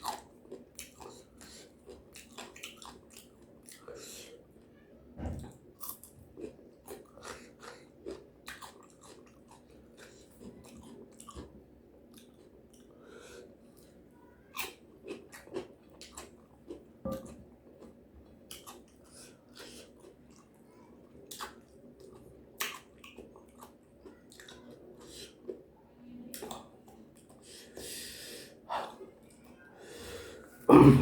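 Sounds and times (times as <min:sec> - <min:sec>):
person chewing crunchy food: 0:00.0 - 0:04.3, 0:05.8 - 0:12.9, 0:13.8 - 0:25.7.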